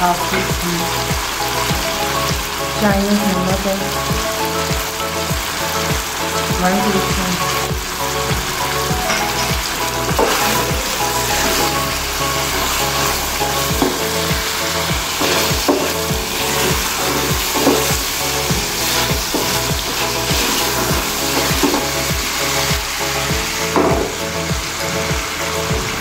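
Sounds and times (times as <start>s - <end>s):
chicken sizzling in pan: 0.0s - 26.0s.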